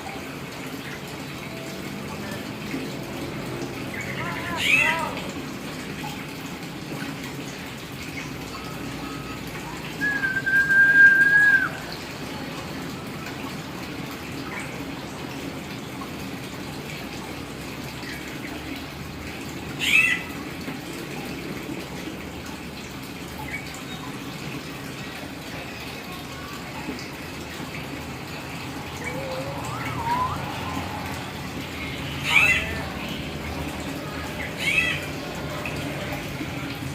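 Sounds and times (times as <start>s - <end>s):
myna whistling: 10.0s - 11.9s, 29.0s - 30.9s.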